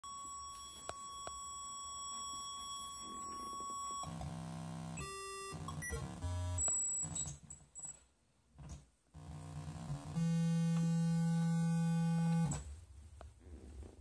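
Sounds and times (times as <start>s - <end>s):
thin electronic beeping tone: 0.0s - 4.2s
harsh buzzing synth tones: 2.8s - 7.4s, 8.6s - 12.7s.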